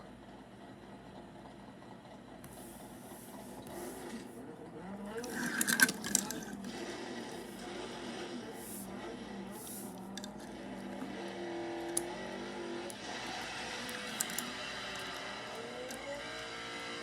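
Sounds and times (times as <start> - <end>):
toy car electric motor buzzing: 5.0 - 17.0.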